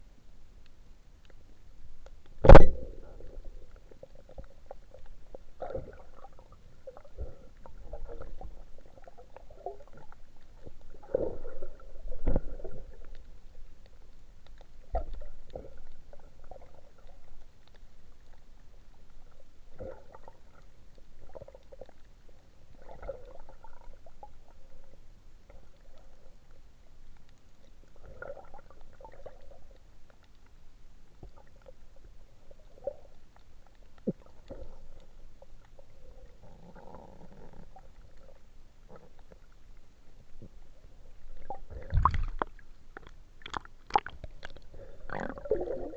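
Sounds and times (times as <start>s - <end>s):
muffled underwater gurgling: 40.4s - 42.5s.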